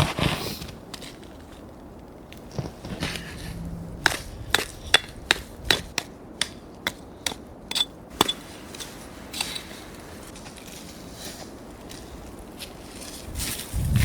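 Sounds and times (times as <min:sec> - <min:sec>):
hand tool striking hard: 0:04.0 - 0:08.4.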